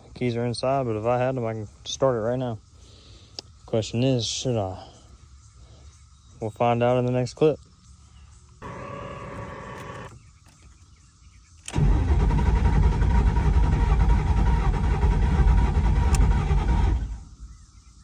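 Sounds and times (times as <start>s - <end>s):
car engine cranking: 8.6s - 10.6s, 11.6s - 17.5s
starter click: 8.6s - 10.7s.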